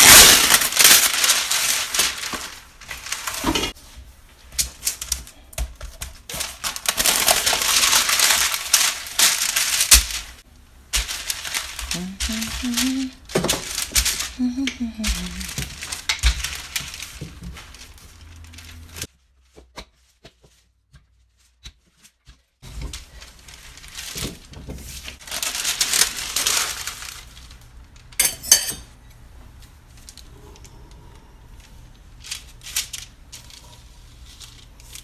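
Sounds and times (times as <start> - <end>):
parchment paper rustling and crinkling: 0.0 - 28.2, 31.4 - 35.0
kitchen utensils clinking: 28.2 - 29.0.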